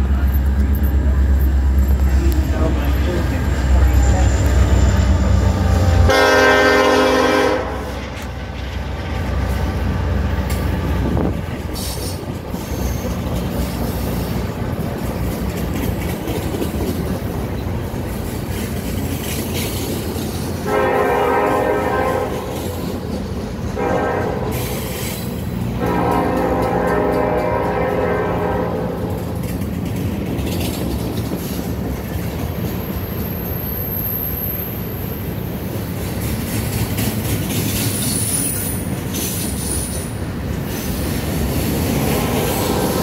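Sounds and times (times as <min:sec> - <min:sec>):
freight train rolling: 0:00.0 - 0:43.0
locomotive horn chord: 0:05.1 - 0:08.2, 0:20.6 - 0:22.7, 0:23.8 - 0:24.7, 0:25.8 - 0:29.1.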